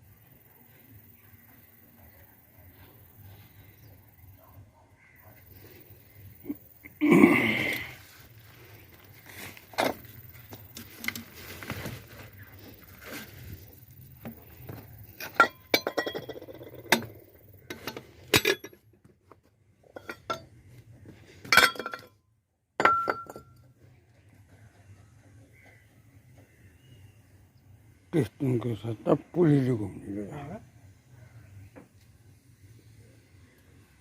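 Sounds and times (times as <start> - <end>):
metal tools clinking: 15.0 - 18.9, 19.9 - 20.5, 21.5 - 22.1, 22.8 - 23.7.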